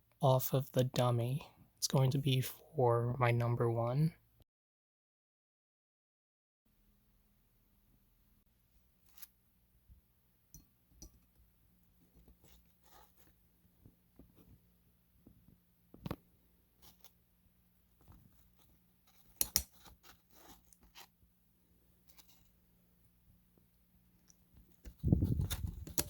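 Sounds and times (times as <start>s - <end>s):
plastic parts clicking and scraping: 24.7s - 26.0s.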